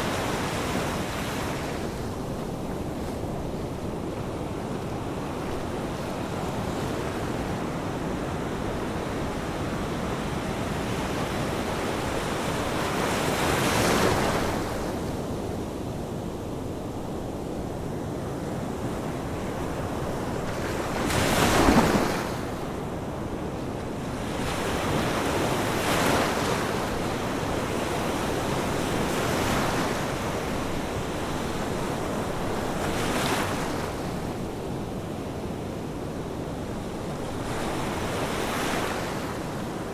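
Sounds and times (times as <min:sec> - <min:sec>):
ocean waves breaking: 0:20.2 - 0:22.8.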